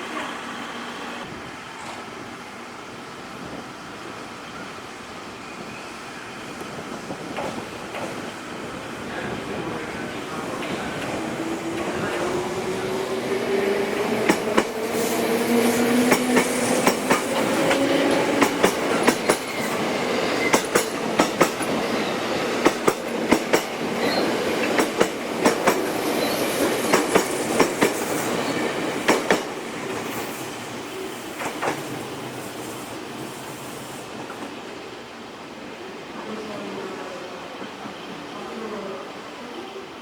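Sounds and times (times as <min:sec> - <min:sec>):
train rolling rumble: 0:00.0 - 0:39.4
train wheels clacking on rail joints: 0:06.6 - 0:08.4, 0:10.5 - 0:30.4, 0:31.3 - 0:32.4.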